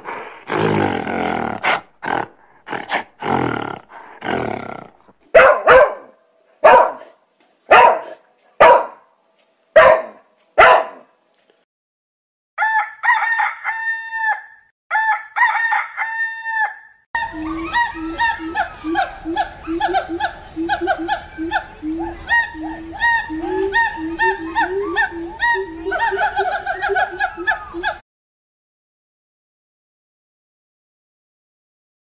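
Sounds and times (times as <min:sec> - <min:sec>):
rooster crowing: 0:12.6 - 0:28.0
monkey chattering: 0:17.2 - 0:28.0.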